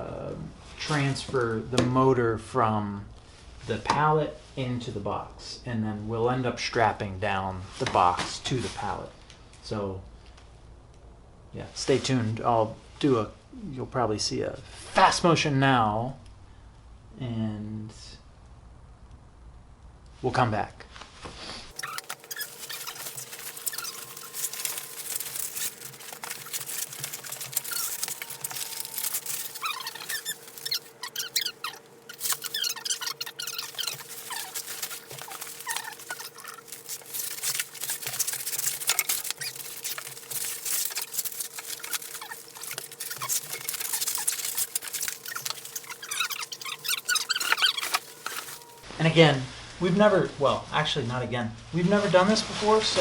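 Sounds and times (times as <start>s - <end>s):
foam wrap crinkling: 21.7s - 48.8s
high squeaky chirps: 21.7s - 48.8s.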